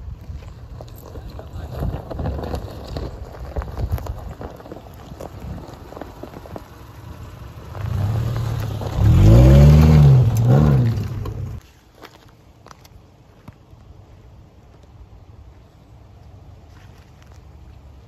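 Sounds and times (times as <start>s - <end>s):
wheels spinning throwing dirt: 0.0s - 12.2s
tyres crackling over gravel: 0.0s - 18.0s
car engine revving uphill: 4.6s - 11.6s.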